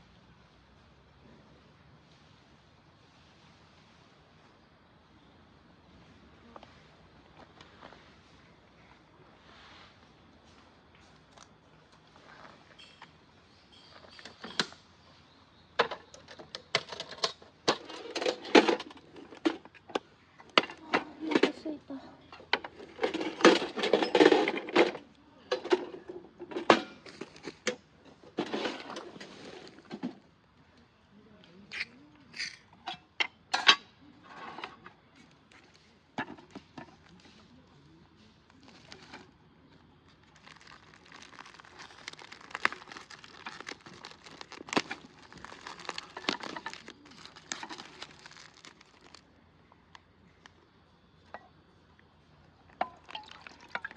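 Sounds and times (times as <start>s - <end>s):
packaging crinkling: 38.5s - 39.3s, 40.1s - 49.2s.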